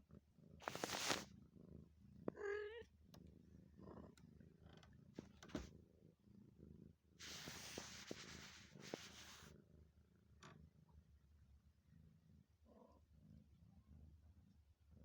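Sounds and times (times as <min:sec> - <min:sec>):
cat purring: 0:00.1 - 0:09.9
cat meowing: 0:02.4 - 0:02.8.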